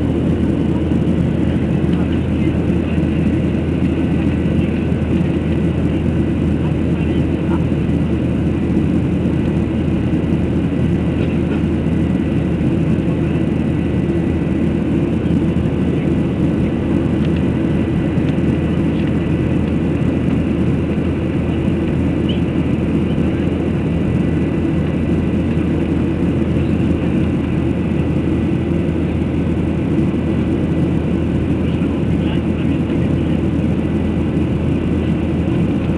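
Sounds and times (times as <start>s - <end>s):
airplane engines droning: 0.0s - 35.9s.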